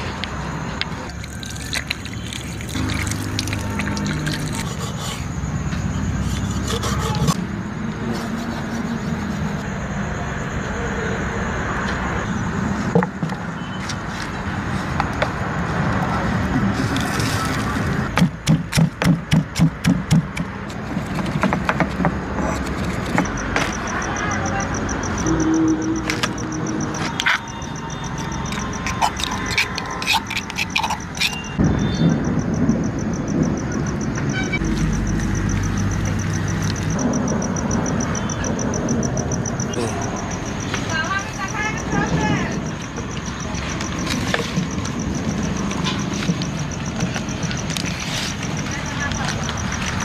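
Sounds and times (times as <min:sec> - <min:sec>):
road traffic: 0:00.0 - 0:50.0
steady background noise: 0:00.0 - 0:50.0
car horn toot: 0:34.3 - 0:34.7.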